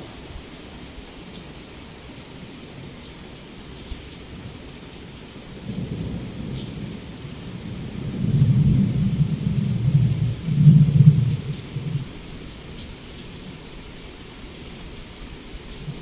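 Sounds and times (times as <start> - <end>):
heavy rain: 0.0 - 16.0
rolling thunder rumble: 5.6 - 12.6.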